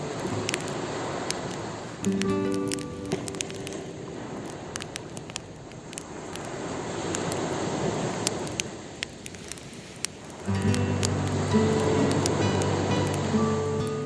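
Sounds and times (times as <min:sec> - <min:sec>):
campfire crackling and popping: 0:00.0 - 0:14.0
waves rushing: 0:00.0 - 0:14.0.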